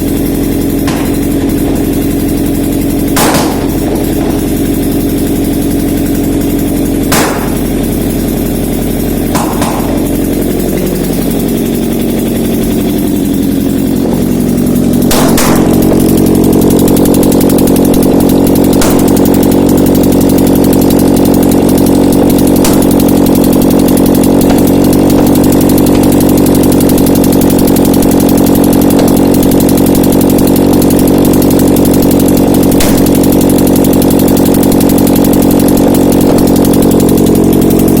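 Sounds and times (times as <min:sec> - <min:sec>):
petrol engine running: 0:00.0 - 0:38.0.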